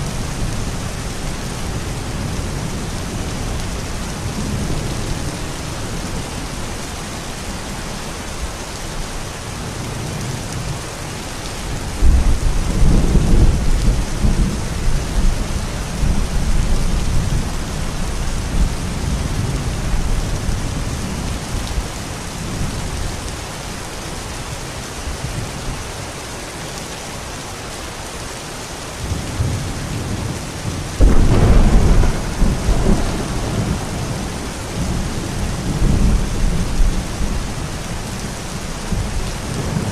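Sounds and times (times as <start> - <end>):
steady rain falling: 0.0 - 39.9
thunder rumbling: 11.9 - 21.9, 29.2 - 39.9.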